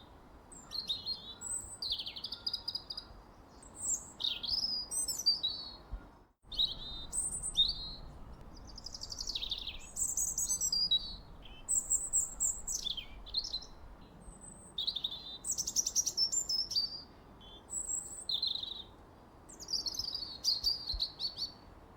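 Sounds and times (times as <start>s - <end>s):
songbirds chirping and singing: 6.5s - 14.2s.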